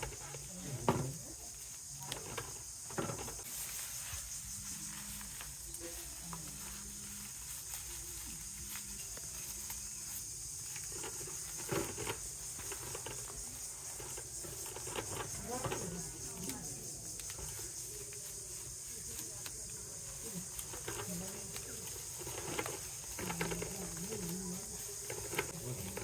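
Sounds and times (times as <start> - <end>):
steady high hiss: 0.0 - 14.6
dry straw rustling and crackling: 0.0 - 26.0.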